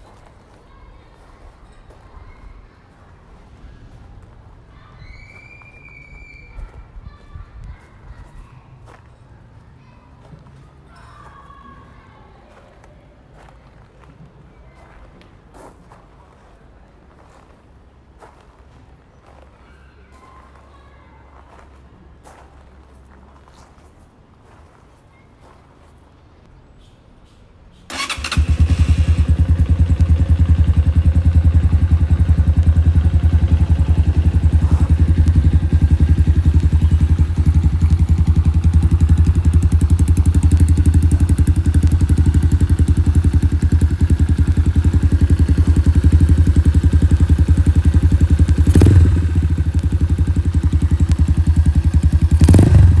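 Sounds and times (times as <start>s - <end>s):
motorcycle engine running: 27.9s - 53.0s.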